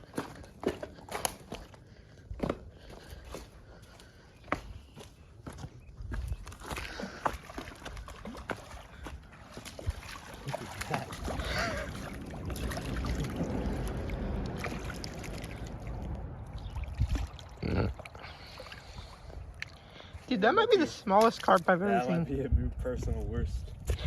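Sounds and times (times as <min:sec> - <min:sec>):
water splashing: 0:06.6 - 0:22.0
wind rumble on microphone: 0:08.9 - 0:19.6, 0:22.2 - 0:24.0.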